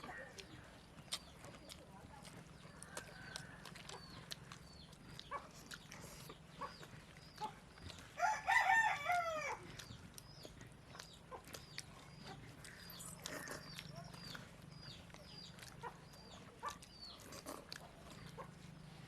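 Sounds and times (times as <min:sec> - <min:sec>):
rooster crowing: 0:08.2 - 0:09.6.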